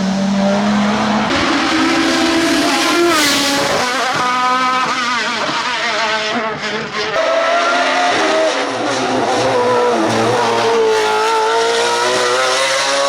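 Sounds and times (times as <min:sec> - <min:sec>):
race car engine at high revs: 0:00.0 - 0:13.0.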